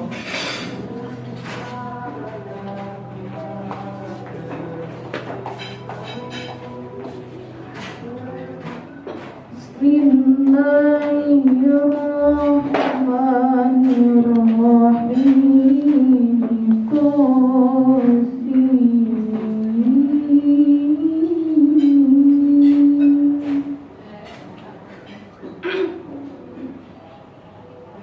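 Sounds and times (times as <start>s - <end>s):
woman chanting melodically: 7.7s - 24.4s.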